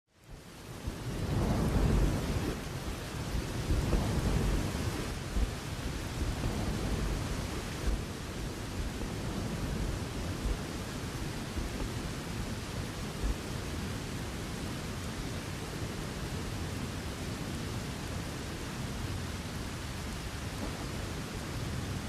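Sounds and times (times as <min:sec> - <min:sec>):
rain falling: 0:00.1 - 0:22.0
thunder rumbling: 0:00.3 - 0:14.6.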